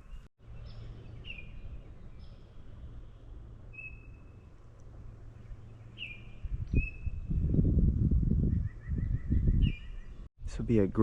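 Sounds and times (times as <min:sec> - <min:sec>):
bird whistling: 0:03.7 - 0:04.4, 0:06.0 - 0:07.3, 0:08.6 - 0:10.2.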